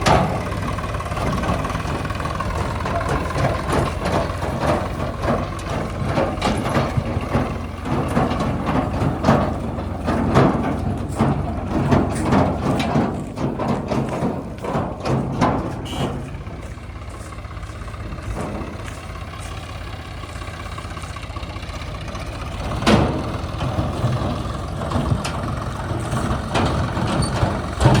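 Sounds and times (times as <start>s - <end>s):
diesel engine running: 0.0s - 28.0s
metal knocks and clanks: 0.0s - 28.0s.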